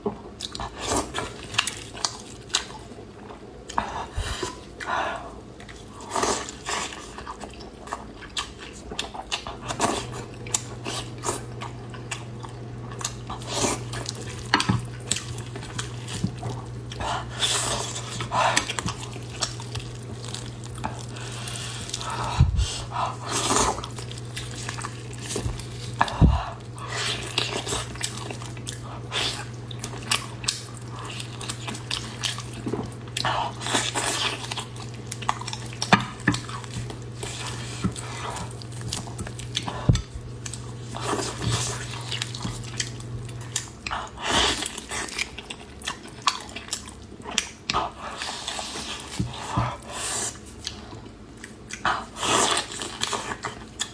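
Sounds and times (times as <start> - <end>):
person chewing wetly: 0.0 - 53.9
steady low hum: 9.0 - 45.6.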